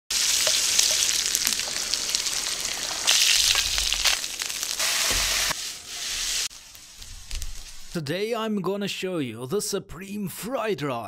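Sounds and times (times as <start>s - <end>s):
meat sizzling in frying pan: 0.1s - 8.0s
oil spitting and popping: 0.4s - 5.2s.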